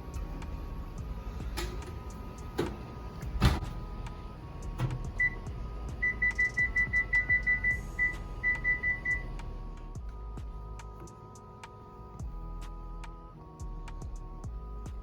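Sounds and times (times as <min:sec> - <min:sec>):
background music: 0:00.0 - 0:15.0
appliance keypad beeping: 0:04.8 - 0:09.3.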